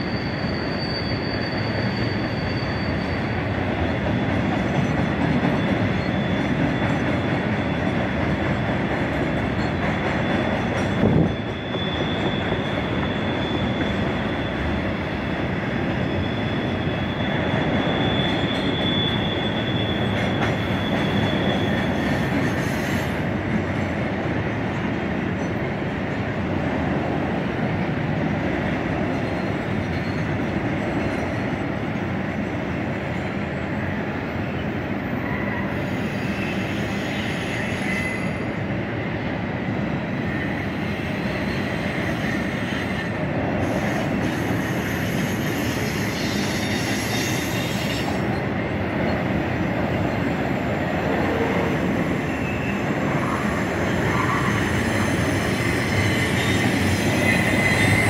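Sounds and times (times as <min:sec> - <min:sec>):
faint high wheel squeal: 0:00.0 - 0:08.6, 0:09.3 - 0:23.3, 0:29.0 - 0:31.8, 0:33.5 - 0:38.8, 0:40.1 - 0:58.0
freight train wheels clattering: 0:01.8 - 0:24.0.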